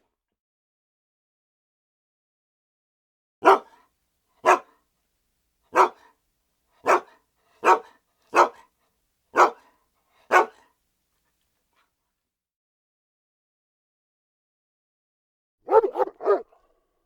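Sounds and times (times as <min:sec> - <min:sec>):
dog barking: 0:03.4 - 0:03.8, 0:04.4 - 0:04.8, 0:05.7 - 0:06.1, 0:06.8 - 0:08.7, 0:09.3 - 0:09.7, 0:10.3 - 0:10.7, 0:15.6 - 0:16.6.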